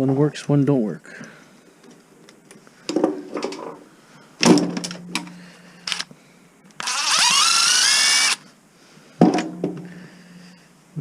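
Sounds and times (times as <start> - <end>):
small electric motor spinning: 6.8 - 8.4.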